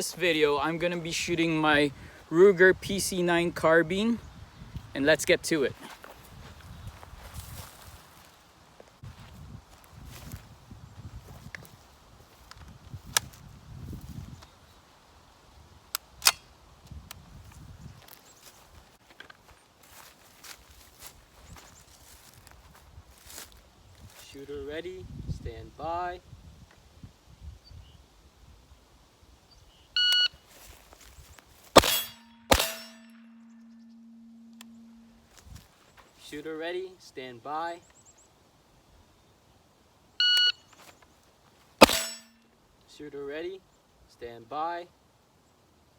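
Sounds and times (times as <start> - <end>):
gun clicks: 15.9 - 16.5
shot timer beep: 30.0 - 30.3, 33.6 - 35.2, 40.2 - 40.6
gunshots: 31.8 - 33.1, 41.8 - 42.3
steel target clanging and ringing: 31.8 - 35.2, 41.8 - 42.4.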